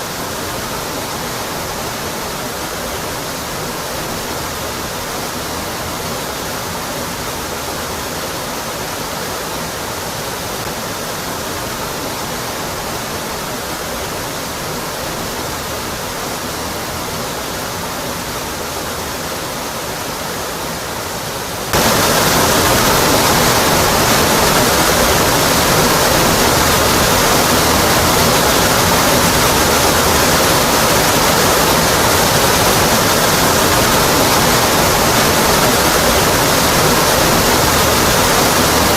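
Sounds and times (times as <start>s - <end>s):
waterfall roaring onto rock: 0.0s - 38.9s.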